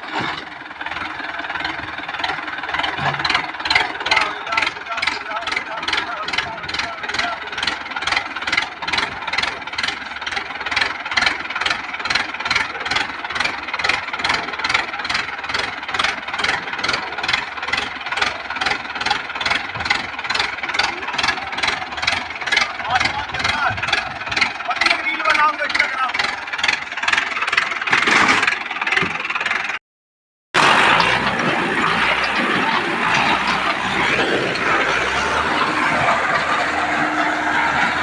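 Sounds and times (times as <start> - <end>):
tractor diesel engine throbbing: 0.0 - 29.8, 30.6 - 38.0.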